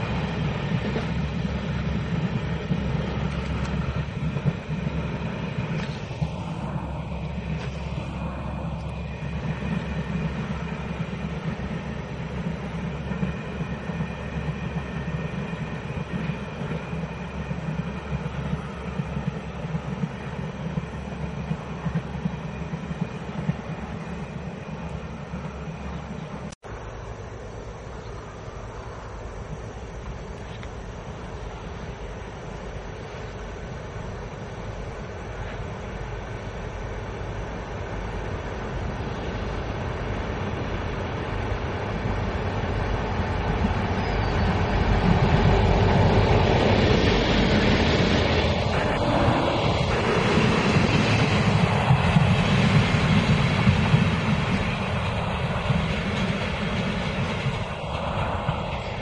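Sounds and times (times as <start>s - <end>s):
train rumbling on rails: 0.0s - 59.0s
knocks of train wheels: 43.1s - 59.0s.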